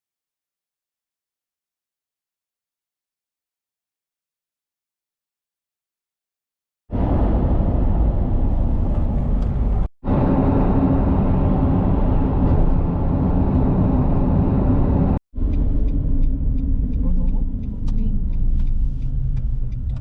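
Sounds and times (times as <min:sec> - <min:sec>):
car road and engine rumble: 0:06.9 - 0:20.0.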